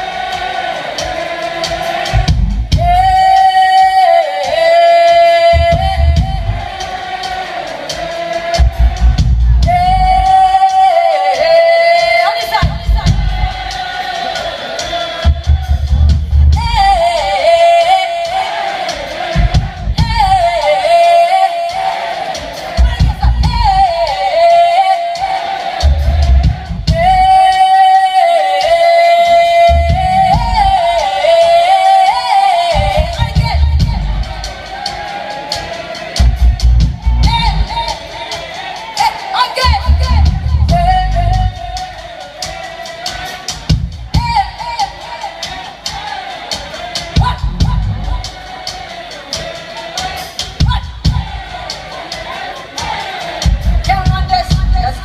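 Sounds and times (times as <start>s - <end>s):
heavy bass pulses: 2.1s - 3.2s, 5.6s - 6.8s, 8.6s - 10.2s, 15.3s - 17.1s, 32.8s - 34.6s, 36.2s - 37.9s, 39.7s - 41.8s, 47.2s - 48.3s
person singing long sliding notes: 2.8s - 8.9s, 9.6s - 15.3s, 16.6s - 19.4s, 20.0s - 26.2s, 26.9s - 36.1s
hi-hat ticks: 6.5s - 9.3s, 10.1s - 15.8s, 17.0s - 28.0s, 30.8s - 55.0s.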